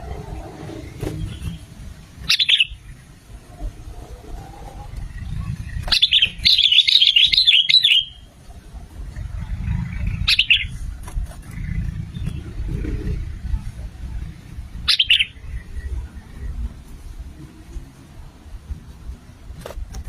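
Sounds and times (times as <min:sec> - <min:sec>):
steady low rumble: 0:00.0 - 0:06.7, 0:08.2 - 0:19.6
bird warbling: 0:00.8 - 0:08.3, 0:09.6 - 0:12.6, 0:14.8 - 0:15.9.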